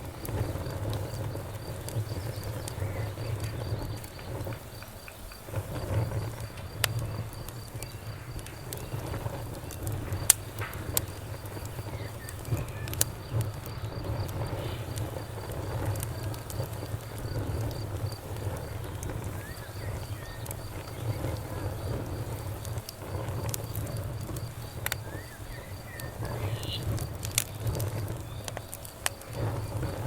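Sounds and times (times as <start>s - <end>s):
campfire crackling: 0.0s - 30.0s
crickets chirping: 0.0s - 30.0s
fire popping and snapping: 0.0s - 30.0s.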